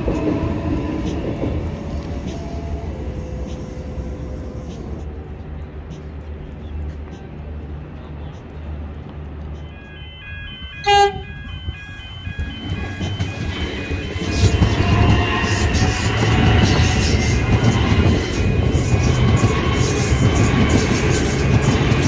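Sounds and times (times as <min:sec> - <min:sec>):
train wheels rumbling past: 0:00.0 - 0:22.0
train horn blast: 0:10.0 - 0:11.9.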